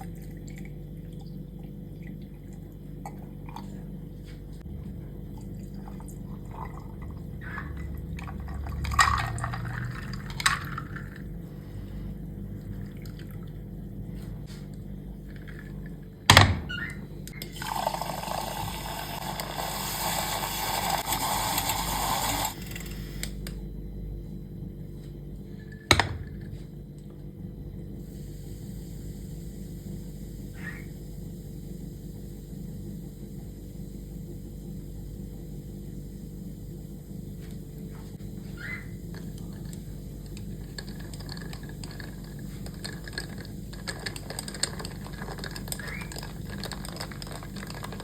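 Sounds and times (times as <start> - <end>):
liquid pouring into a glass: 5.4 - 11.2.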